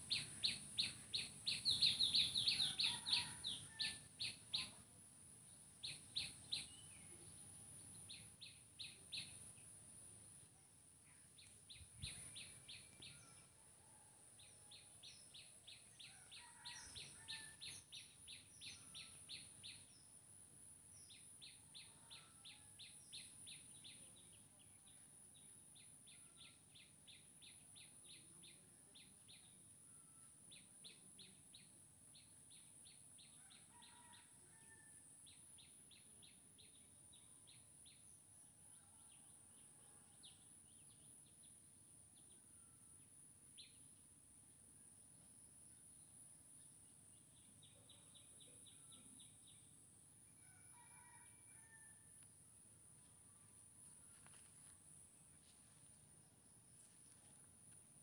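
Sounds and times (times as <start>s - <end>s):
faint bird chirping: 45.2s - 49.8s.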